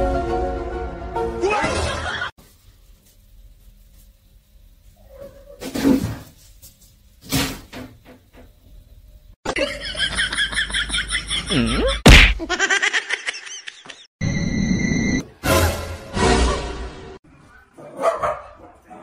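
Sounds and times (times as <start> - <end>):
loud smack: 7.2 - 7.9, 12.0 - 12.4.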